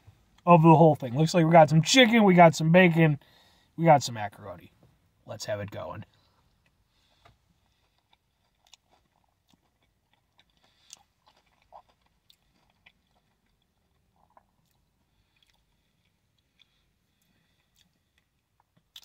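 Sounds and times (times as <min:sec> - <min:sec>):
wet mouth chewing: 0:07.7 - 0:16.8.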